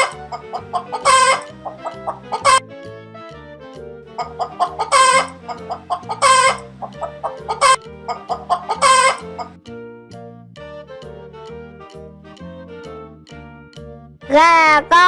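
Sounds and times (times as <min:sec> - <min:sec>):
hen clucking: 0:00.0 - 0:02.6, 0:04.2 - 0:09.6
light children's music: 0:00.0 - 0:15.0.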